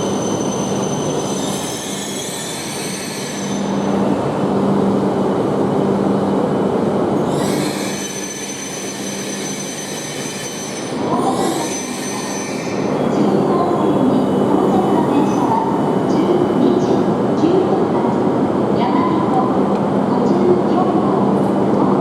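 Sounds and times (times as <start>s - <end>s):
train wheel squeal: 0.0s - 3.9s, 7.2s - 15.9s
train electric hum and rolling: 0.0s - 22.0s.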